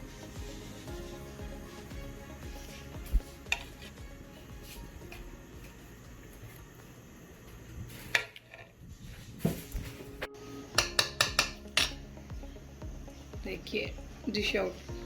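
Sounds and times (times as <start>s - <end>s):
spoon clinking on metal: 10.8s - 12.0s.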